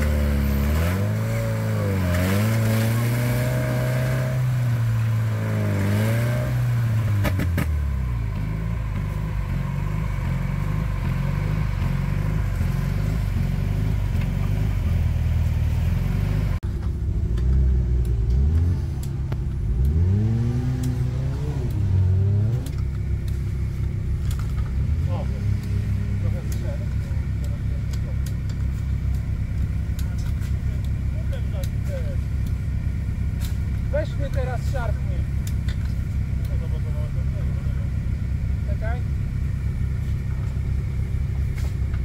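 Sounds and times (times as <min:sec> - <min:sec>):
engine revving under load: 0:00.0 - 0:16.6, 0:17.2 - 0:32.2.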